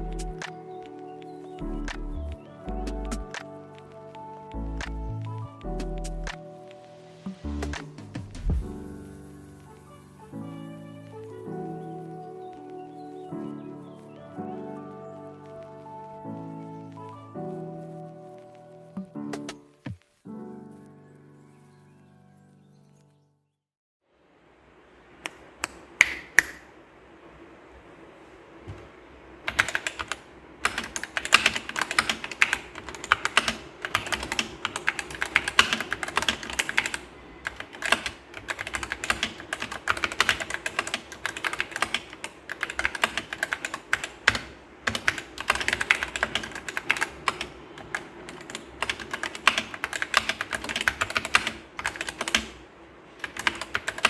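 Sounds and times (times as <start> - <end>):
mechanical keyboard typing: 29.5 - 54.0.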